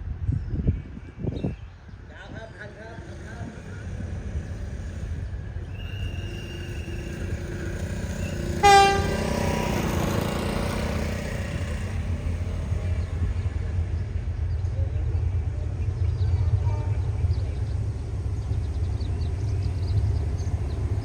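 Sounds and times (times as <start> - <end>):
train rumbling: 0.0 - 21.0
train horn toot: 8.0 - 9.9, 16.6 - 17.2.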